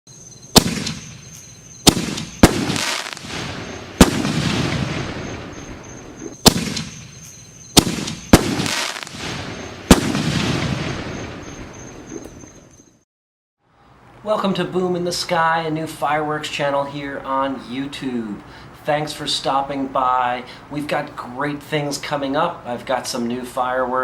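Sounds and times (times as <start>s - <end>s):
firework shells bursting: 0.5s - 12.2s.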